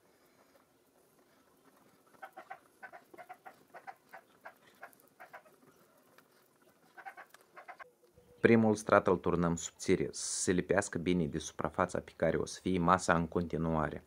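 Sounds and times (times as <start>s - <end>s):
bird chirps: 7.6s - 8.6s.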